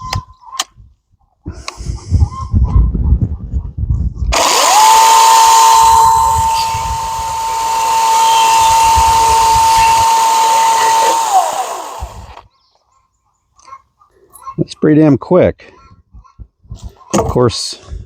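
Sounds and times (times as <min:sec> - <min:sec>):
battery chainsaw whining: 0:04.3 - 0:12.4.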